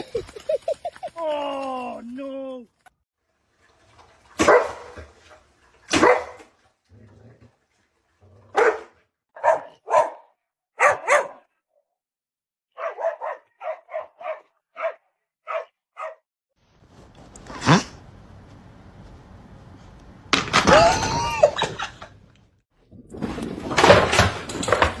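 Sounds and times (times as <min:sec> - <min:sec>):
dog barking: 0:04.4 - 0:05.0, 0:05.9 - 0:06.5, 0:08.5 - 0:11.5, 0:12.8 - 0:16.2.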